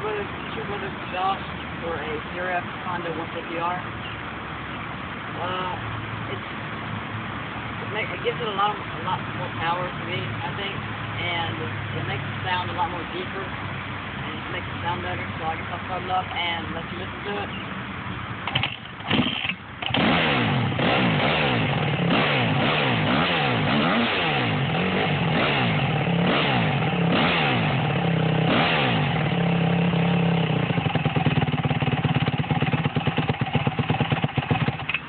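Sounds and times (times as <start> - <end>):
motorcycle engine revving: 17.4 - 35.0.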